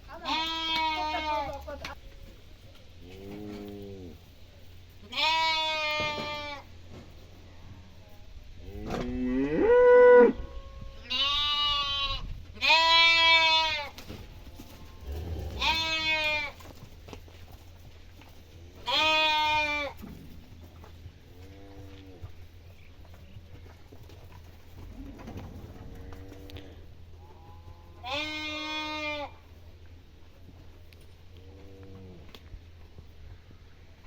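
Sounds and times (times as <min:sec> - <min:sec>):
cattle mooing: 0:03.1 - 0:04.2, 0:14.9 - 0:16.4.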